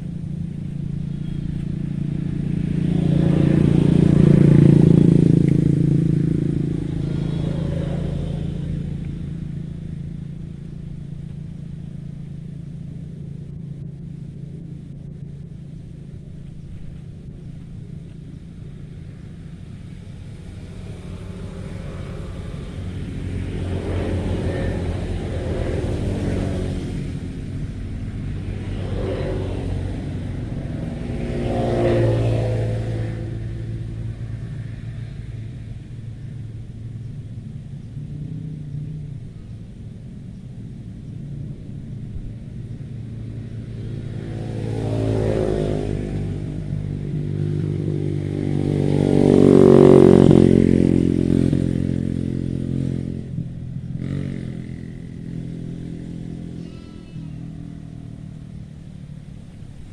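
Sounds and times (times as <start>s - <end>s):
steady low rumble: 0.0s - 59.9s
vehicles passing by: 0.0s - 59.9s.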